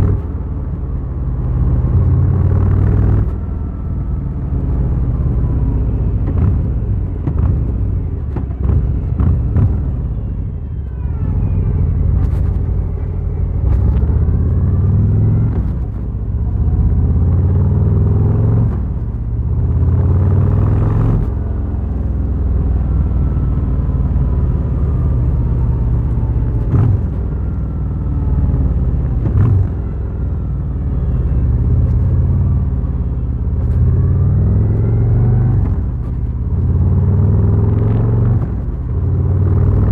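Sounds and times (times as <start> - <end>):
motorcycle engine accelerating: 0.0 - 10.2, 11.5 - 39.9.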